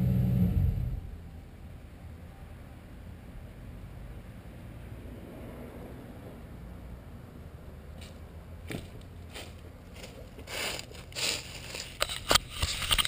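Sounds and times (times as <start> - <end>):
faint low rumble: 0.0 - 10.4
rustling and scraping on microphone: 8.8 - 13.0.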